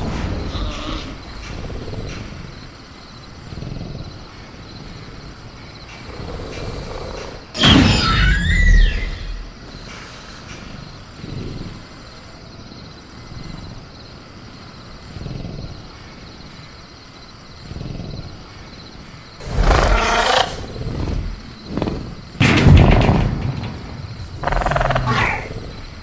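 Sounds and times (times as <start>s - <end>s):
velociraptor growling: 0.0s - 2.7s, 3.3s - 7.6s, 9.0s - 12.4s, 19.4s - 23.0s, 23.7s - 26.0s
crickets chirring: 0.0s - 26.0s.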